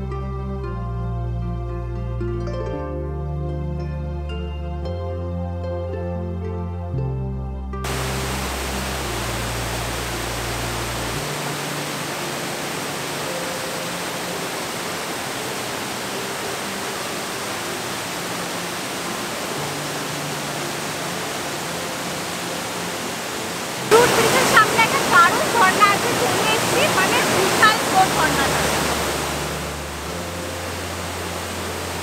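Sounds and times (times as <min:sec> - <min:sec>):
soft background music: 0:00.0 - 0:32.0
waterfall roaring: 0:07.9 - 0:32.0.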